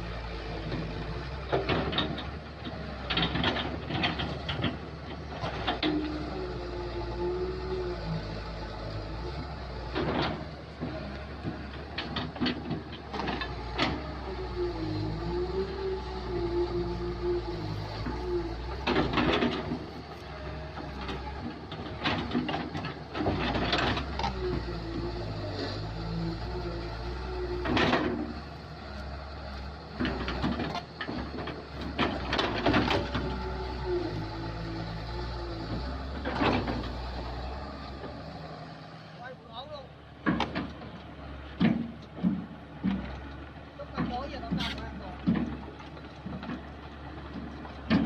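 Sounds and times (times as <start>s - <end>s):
clattering of digging: 0.0s - 39.1s, 40.1s - 48.0s
excavator running: 0.0s - 48.0s
metallic knocks and clanks: 40.2s - 43.2s.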